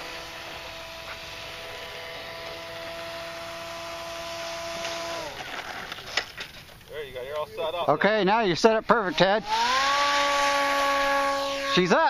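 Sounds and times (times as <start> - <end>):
model airplane motor whining: 0.0 - 6.4, 8.9 - 12.0.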